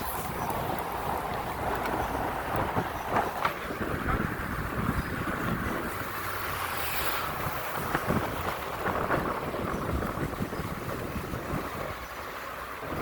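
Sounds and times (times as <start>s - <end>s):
city street traffic rumble: 0.0s - 13.0s
wind buffeting microphone: 0.0s - 13.0s.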